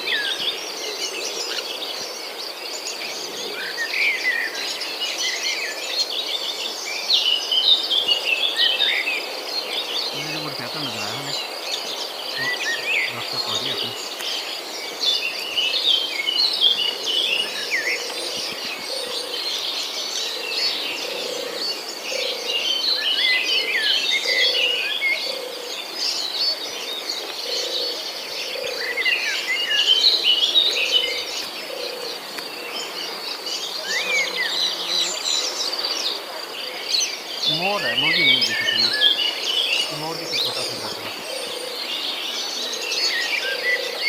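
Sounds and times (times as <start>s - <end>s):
birds chirping and twittering: 0.0s - 44.0s.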